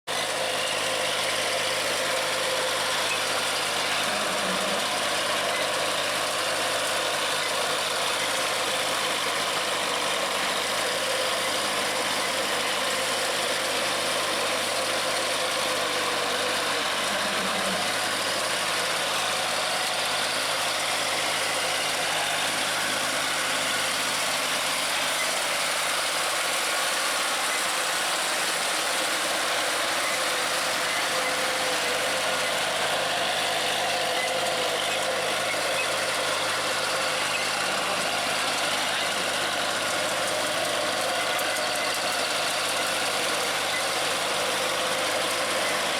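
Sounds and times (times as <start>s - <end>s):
tractor diesel engine running: 0.1s - 45.9s.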